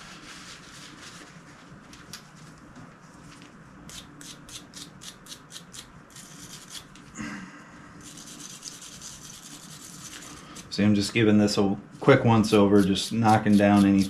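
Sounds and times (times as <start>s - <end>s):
wire brush scrubbing metal: 12.3s - 14.0s.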